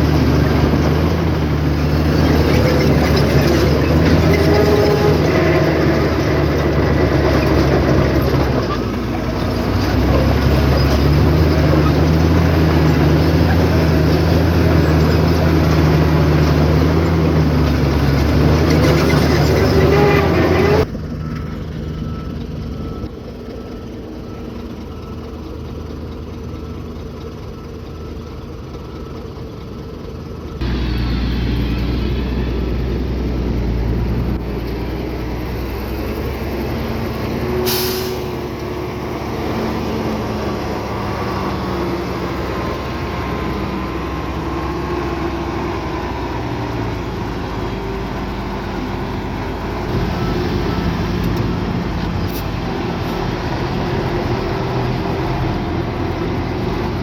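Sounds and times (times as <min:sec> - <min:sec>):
heavy diesel engines running: 0:00.0 - 0:57.0.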